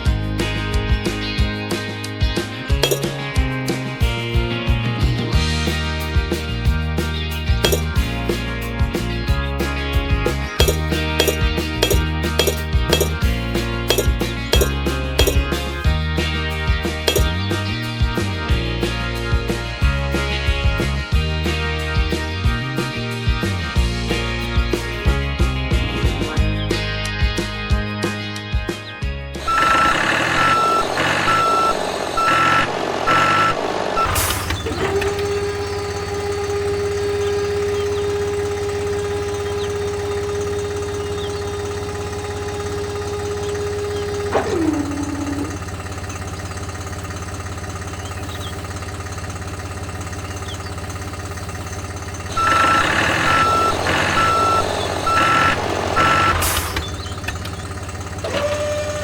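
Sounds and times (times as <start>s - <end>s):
motor hum: 2.7s - 3.4s, 7.4s - 8.5s, 10.3s - 18.7s, 29.4s - 59.0s
reversing alarm beeps: 29.4s - 44.4s, 52.3s - 57.2s
steady whine: 29.4s - 58.4s.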